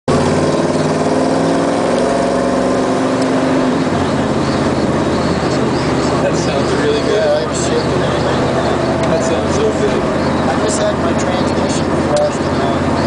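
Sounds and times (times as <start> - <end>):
car engine drone: 0.1 - 13.0.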